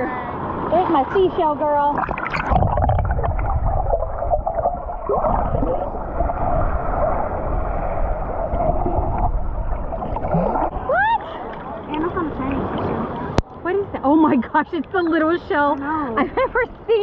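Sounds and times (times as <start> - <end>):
sea water sloshing and gurgling: 0.2 - 13.5
steady low rumble: 0.5 - 13.5.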